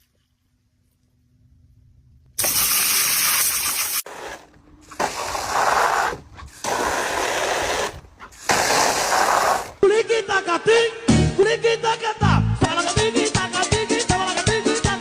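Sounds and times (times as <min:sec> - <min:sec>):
water spraying hard: 0:02.4 - 0:09.8.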